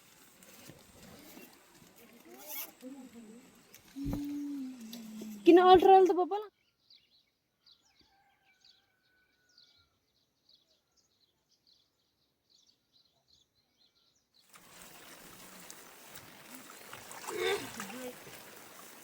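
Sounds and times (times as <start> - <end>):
steady rushing hiss: 14.6 - 19.0.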